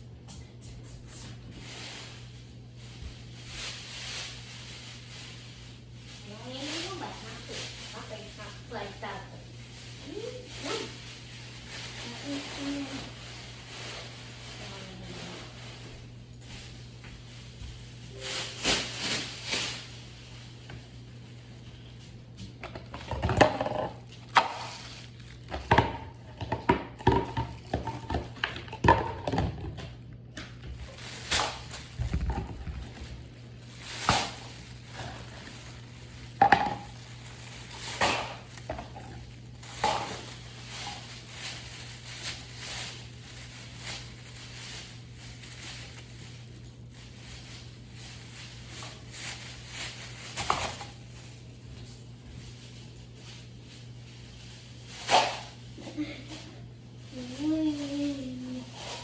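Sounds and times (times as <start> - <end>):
objects being handled: 22.0 - 42.4.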